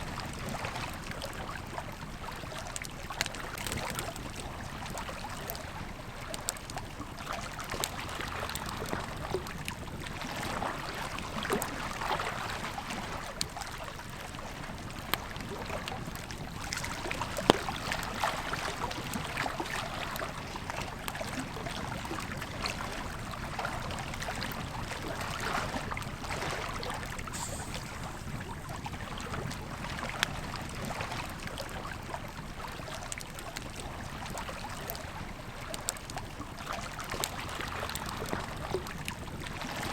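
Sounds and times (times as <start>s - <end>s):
river flowing: 22.8s - 31.7s
campfire crackling and popping: 27.0s - 35.0s.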